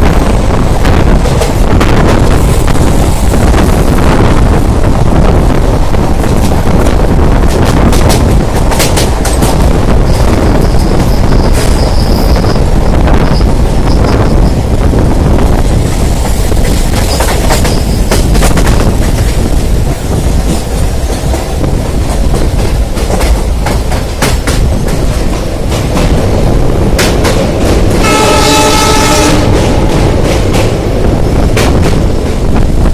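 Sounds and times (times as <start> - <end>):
train wheels clickety-clack: 0.0 - 32.9.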